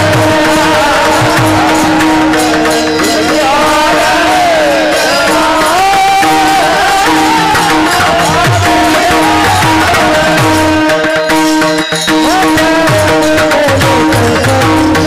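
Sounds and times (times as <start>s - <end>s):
hand drum: 0.0s - 15.0s
jingling cymbals: 0.0s - 15.0s
person singing: 0.0s - 15.0s.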